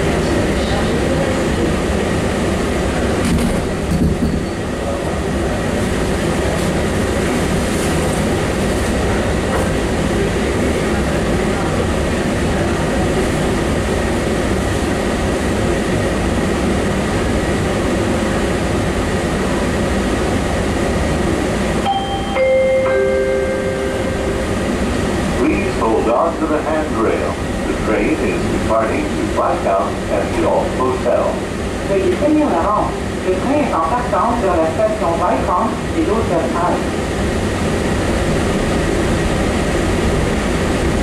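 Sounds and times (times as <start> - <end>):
train car rumble and hiss: 0.0 - 41.0.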